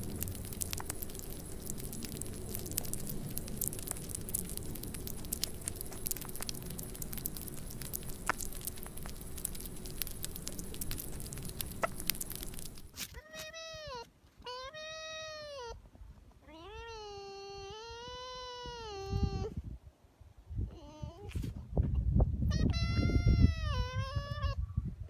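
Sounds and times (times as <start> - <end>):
low rumble: 0.0 - 12.9
pet mouth clicks and crackles: 0.0 - 13.6.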